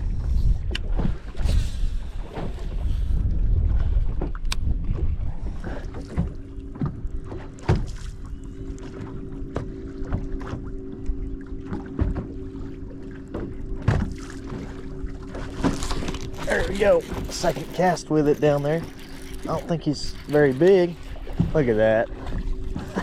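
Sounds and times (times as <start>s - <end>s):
wind on microphone: 0.0s - 6.4s
low motor hum: 0.0s - 23.0s
water slapping against boat hull: 0.1s - 23.0s.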